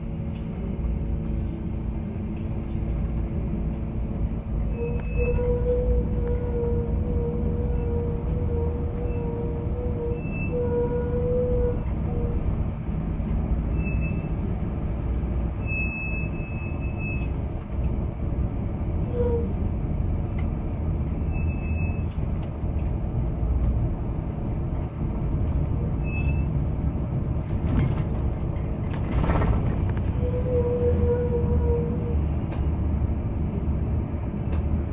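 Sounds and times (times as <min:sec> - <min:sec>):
vehicle interior rumble: 0:00.0 - 0:34.9
rattling noise: 0:27.4 - 0:30.2.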